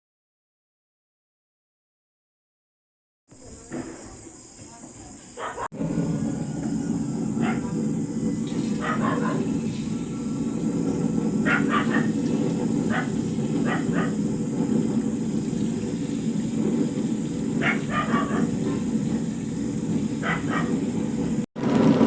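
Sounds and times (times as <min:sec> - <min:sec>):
steady low rumble: 0:05.7 - 0:22.0.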